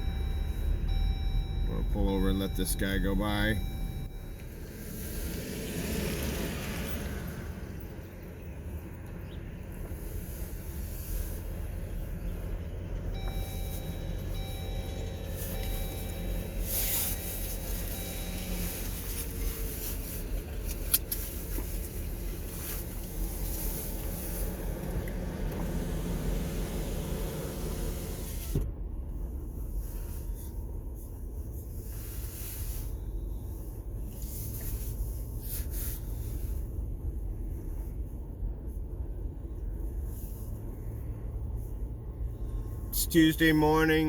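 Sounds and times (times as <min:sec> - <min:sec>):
faint high steady tone: 0:00.0 - 0:04.5, 0:13.2 - 0:18.9
vehicle engine rumbling: 0:00.0 - 0:44.0.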